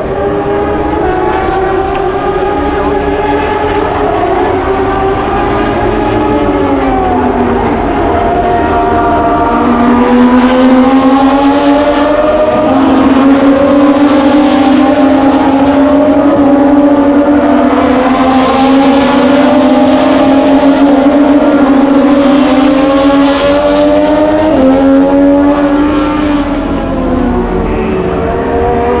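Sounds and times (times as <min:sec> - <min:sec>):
racing motorcycle engines high revs: 0:00.0 - 0:29.0.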